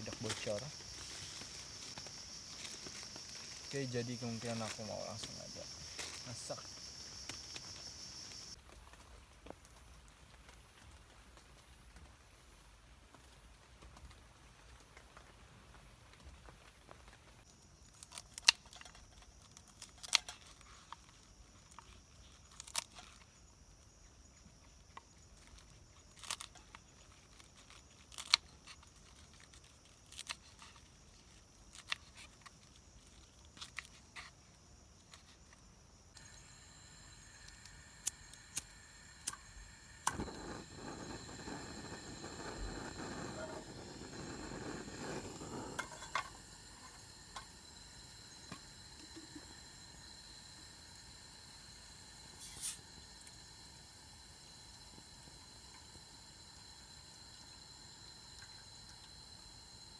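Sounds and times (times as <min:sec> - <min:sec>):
rushing hiss: 0:00.0 - 0:08.6, 0:36.2 - 0:59.9.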